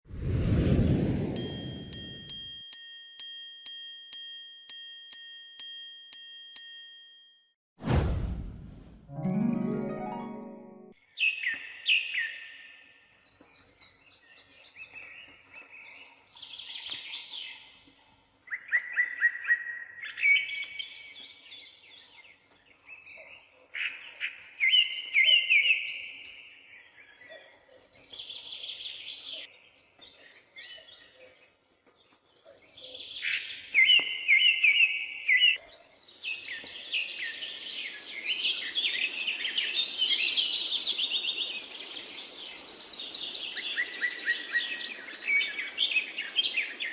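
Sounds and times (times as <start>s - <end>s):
songbird chirps and trills: 9.1s - 11.6s.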